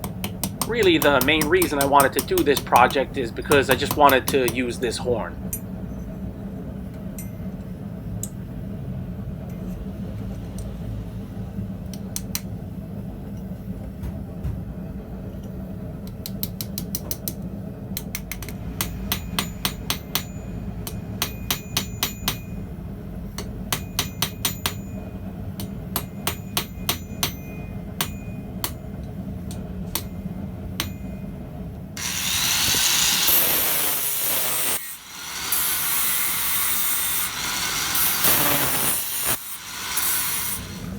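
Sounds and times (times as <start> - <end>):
hammer striking steel on anvil: 0.0 - 5.7, 18.0 - 22.6, 23.3 - 31.3, 33.3 - 40.8
loud rasping scraping: 32.0 - 40.9.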